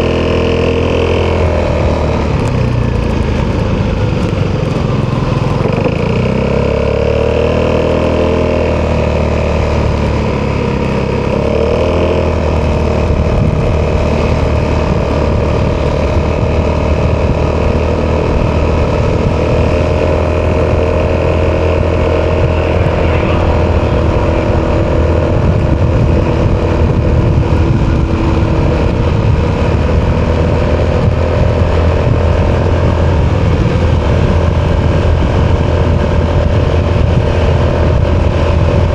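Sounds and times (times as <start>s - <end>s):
scooter engine running: 0.0s - 38.9s.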